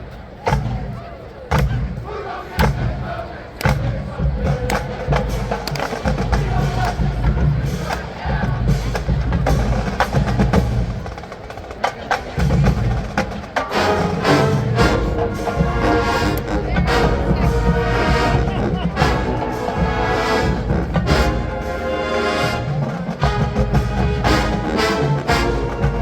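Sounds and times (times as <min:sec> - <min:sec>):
marching band playing funk: 0:00.0 - 0:26.0
sharp clicking percussion strikes: 0:02.6 - 0:13.8
brass playing: 0:13.6 - 0:26.0.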